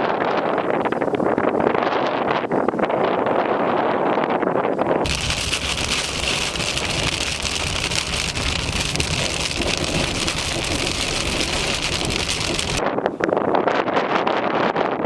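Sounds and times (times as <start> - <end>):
heavy rain: 5.1 - 12.8.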